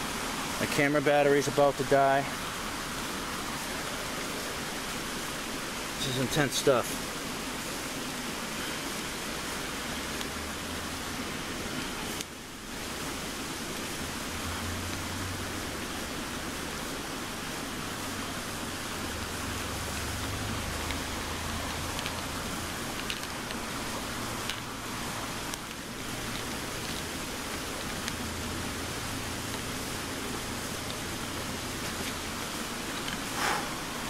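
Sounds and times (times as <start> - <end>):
heavy rain hissing: 0.0 - 34.0
raindrop ticks: 10.1 - 10.8, 11.7 - 12.3, 19.8 - 33.5.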